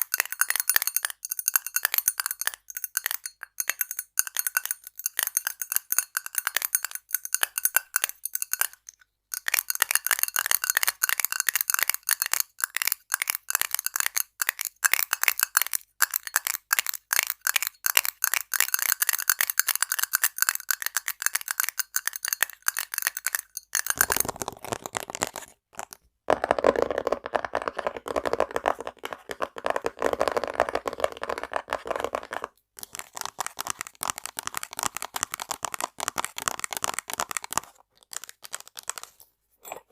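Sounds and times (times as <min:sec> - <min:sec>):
tapping on ringing item: 0:00.0 - 0:08.8.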